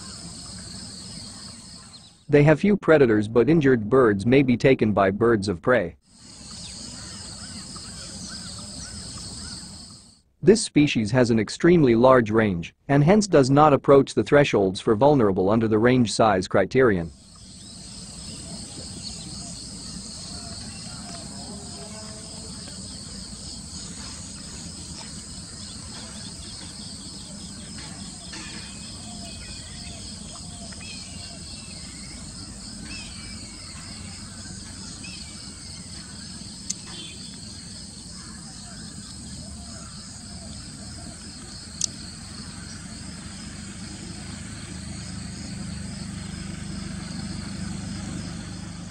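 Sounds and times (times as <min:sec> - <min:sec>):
faint bird calls: 0:00.0 - 0:02.3, 0:06.1 - 0:10.2, 0:17.2 - 0:48.8
insects chirring: 0:00.0 - 0:02.5, 0:06.1 - 0:10.2, 0:17.1 - 0:48.9
sharp clicks: 0:36.6 - 0:37.4.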